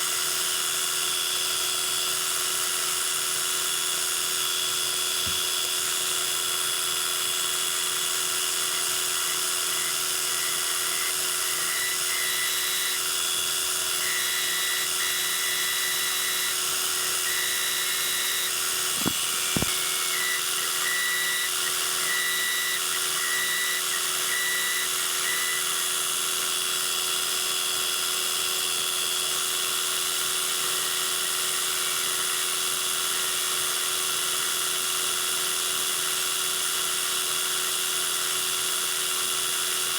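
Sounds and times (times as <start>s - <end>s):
metal lathe motor whine: 0.0s - 39.9s.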